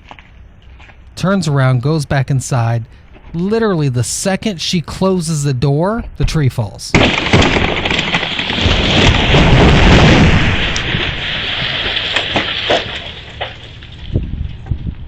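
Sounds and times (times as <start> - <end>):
tree crashing down: 6.9 - 15.0
branches snapping: 7.0 - 14.3.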